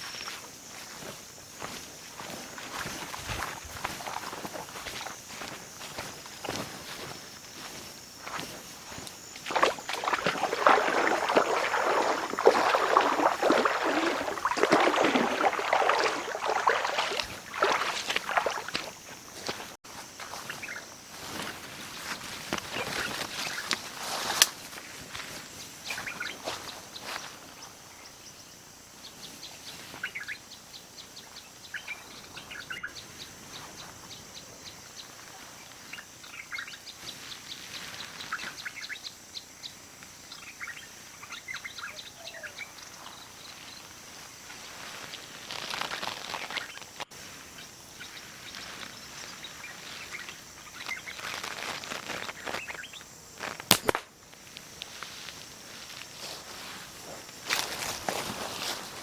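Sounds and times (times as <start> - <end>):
small birds chirping: 0.0 - 23.8, 25.3 - 28.4, 29.0 - 44.0, 45.8 - 53.1
high-pitched background hiss: 0.0 - 59.0
loud sharp crack: 53.6 - 54.1.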